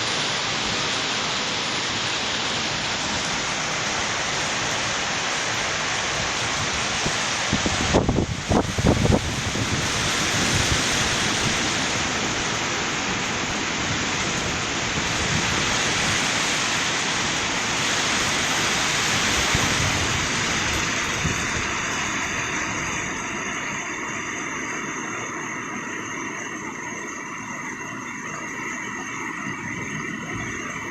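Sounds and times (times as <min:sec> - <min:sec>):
heavy rain in strong wind: 0:00.0 - 0:30.9.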